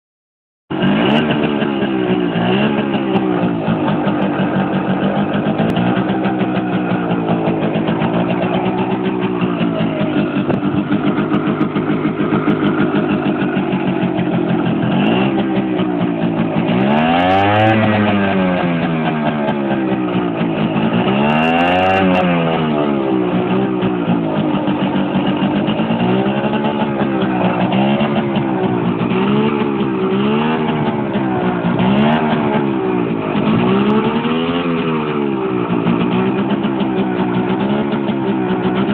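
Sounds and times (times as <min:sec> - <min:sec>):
moped engine revving: 0:00.7 - 0:38.9.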